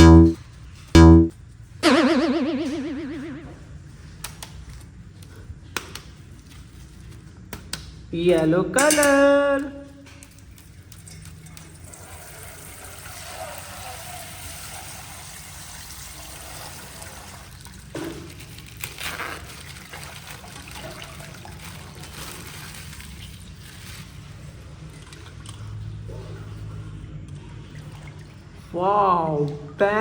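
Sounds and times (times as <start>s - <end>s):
sharp loud sounds: 0.0s - 0.4s, 1.0s - 3.5s
water trickling and sloshing: 10.1s - 29.9s.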